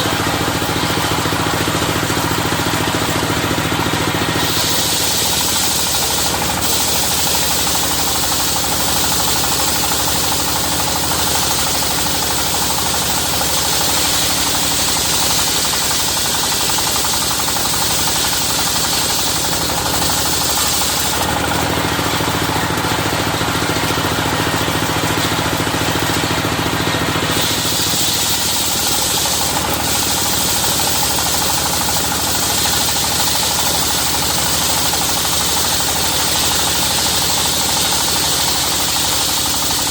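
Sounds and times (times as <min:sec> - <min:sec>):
chugging engine: 0:00.0 - 0:39.9
saw blade hissing in wood: 0:03.2 - 0:10.3, 0:11.2 - 0:21.3, 0:27.1 - 0:39.8.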